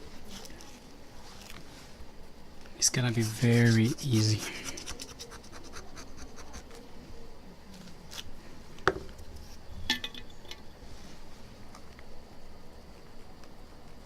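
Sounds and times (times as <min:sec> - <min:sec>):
plastic knife scraping adhesive: 0:03.0 - 0:06.6.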